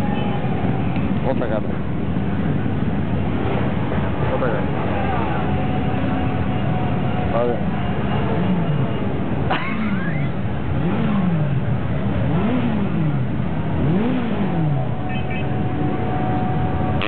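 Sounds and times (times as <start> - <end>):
motorcycle engine revving: 7.6 - 17.0.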